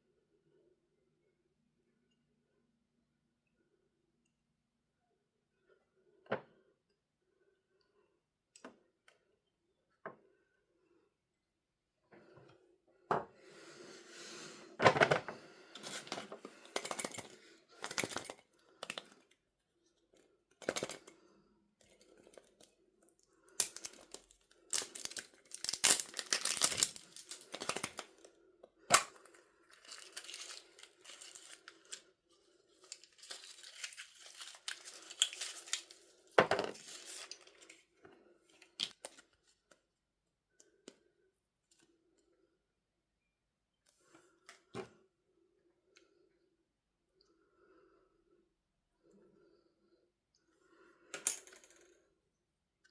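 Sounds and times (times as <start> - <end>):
packaging being torn and crinkled: 23.6 - 28.1, 29.7 - 32.0, 32.8 - 36.1, 36.8 - 37.6.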